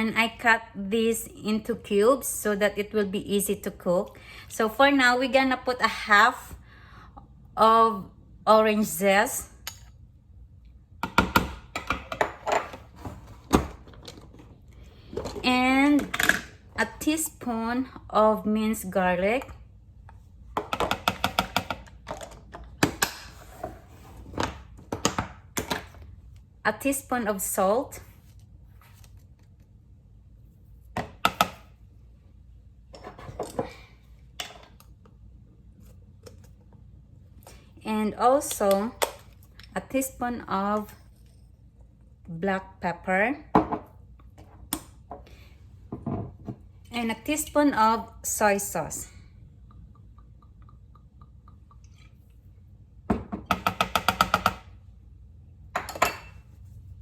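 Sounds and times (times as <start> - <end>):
utensils tapping and clicking: 53.5 - 54.6.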